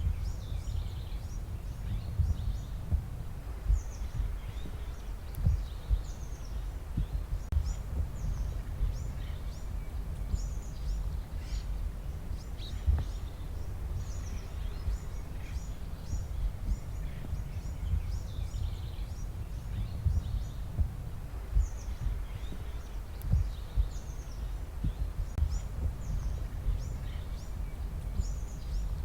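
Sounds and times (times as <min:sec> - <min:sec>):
small birds chirping: 0:00.0 - 0:29.0
steady low rumble: 0:00.0 - 0:29.0.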